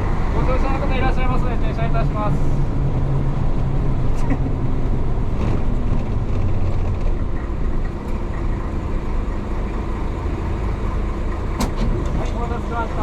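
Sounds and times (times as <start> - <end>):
bus diesel engine droning: 0.0 - 13.0.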